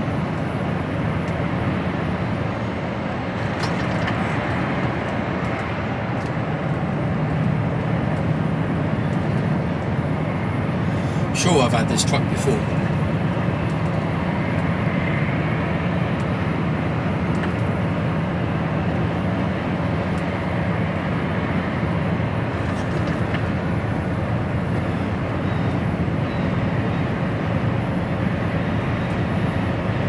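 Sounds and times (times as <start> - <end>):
lorry diesel engine drone: 0.0 - 30.0
road noise: 0.0 - 30.0.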